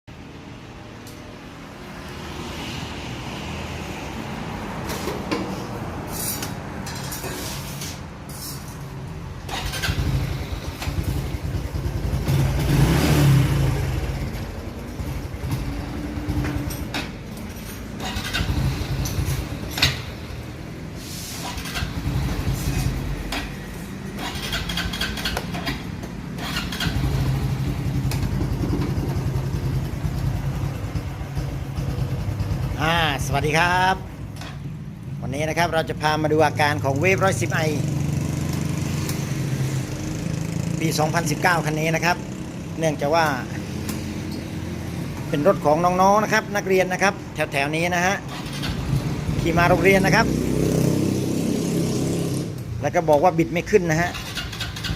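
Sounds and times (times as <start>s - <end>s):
motorcycle engine revving: 9.4s - 17.0s, 17.6s - 33.5s, 36.8s - 45.6s, 48.3s - 52.8s, 54.1s - 54.9s.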